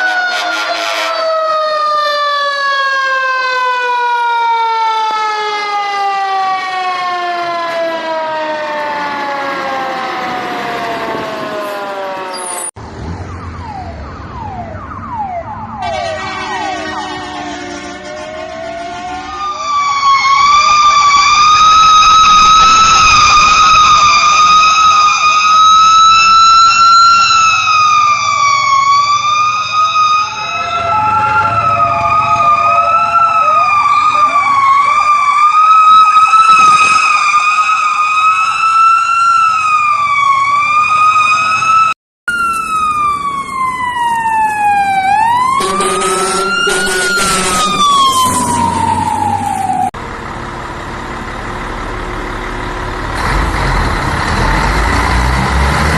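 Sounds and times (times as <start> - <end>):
fire truck sirens wailing: 0.0 - 55.9.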